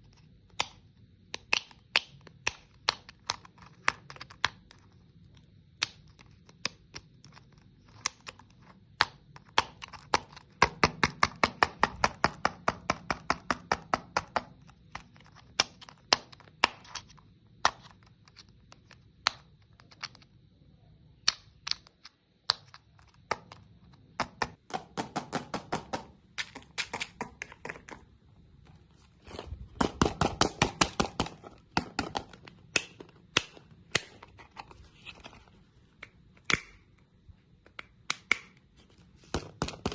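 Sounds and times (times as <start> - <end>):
hard candy crunching: 29.1 - 35.3.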